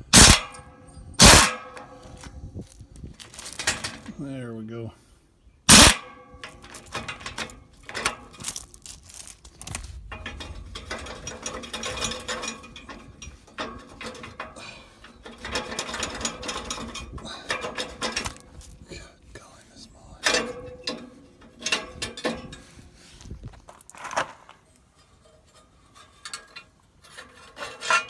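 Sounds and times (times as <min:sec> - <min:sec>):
metallic clang: 0:00.1 - 0:02.4, 0:05.7 - 0:08.6, 0:20.2 - 0:22.7
metal clicks and rattles: 0:00.1 - 0:04.2, 0:05.7 - 0:18.8, 0:20.2 - 0:22.9, 0:23.7 - 0:28.0.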